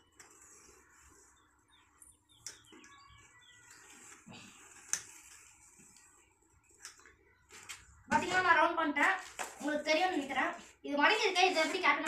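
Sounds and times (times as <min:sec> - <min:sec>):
faint bird chirps: 0:00.0 - 0:04.6.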